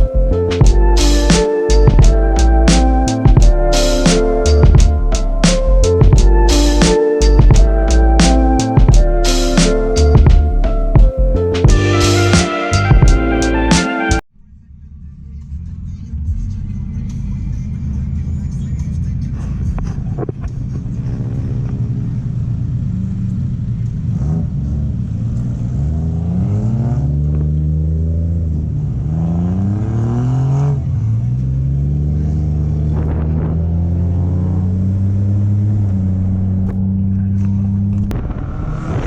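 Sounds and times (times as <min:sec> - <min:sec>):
car engine accelerating: 0:14.6 - 0:39.0.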